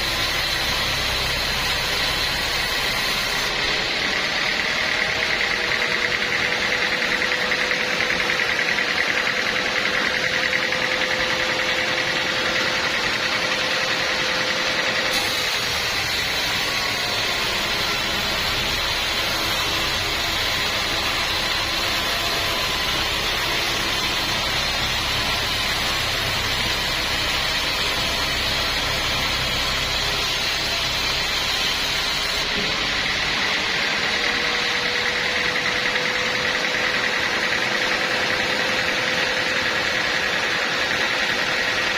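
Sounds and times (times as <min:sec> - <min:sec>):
portable sawmill running: 0:00.0 - 0:41.9
saw blade cutting wood: 0:00.0 - 0:41.9.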